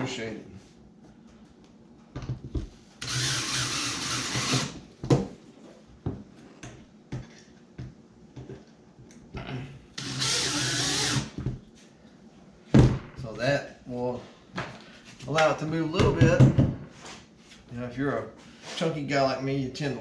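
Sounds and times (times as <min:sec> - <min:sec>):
power drill driving screws: 0:03.0 - 0:04.8, 0:10.0 - 0:11.4.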